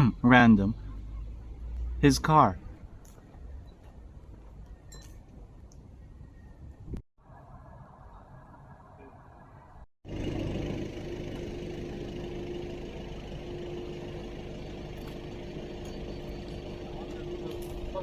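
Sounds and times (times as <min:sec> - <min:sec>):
car engine idling: 0:10.0 - 0:18.0.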